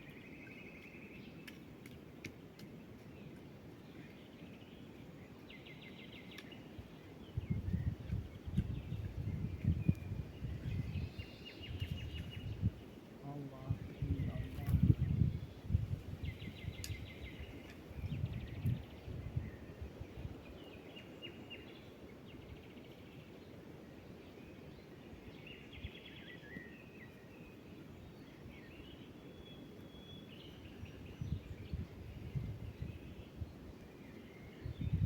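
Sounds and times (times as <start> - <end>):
small birds chirping and trilling: 0.0 - 21.8.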